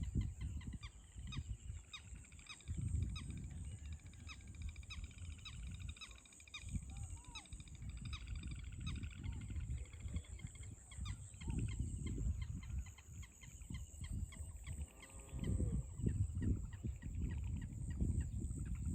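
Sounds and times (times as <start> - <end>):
gusty low rumble: 6.7 - 18.9.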